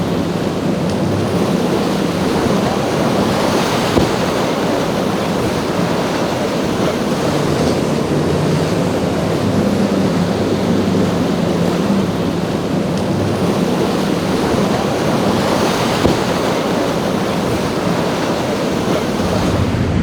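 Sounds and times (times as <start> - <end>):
boat engines humming: 0.0 - 20.0
rough surf: 0.0 - 20.0
wind buffeting microphone: 0.0 - 20.0
wind rushing: 18.8 - 20.0.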